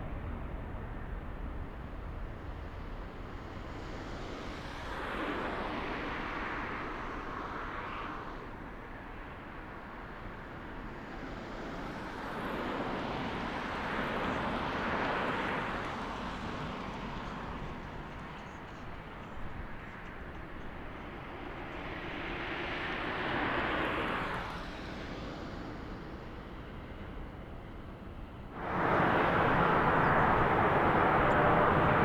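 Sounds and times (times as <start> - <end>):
jet engine roar: 28.6 - 32.0.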